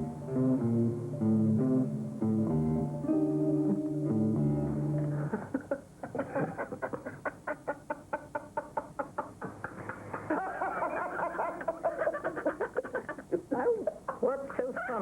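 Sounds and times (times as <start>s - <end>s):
person laughing: 5.1s - 14.3s.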